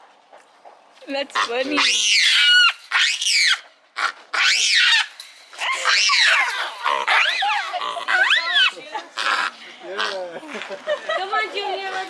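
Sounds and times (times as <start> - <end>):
monkey screeching: 1.4 - 10.2.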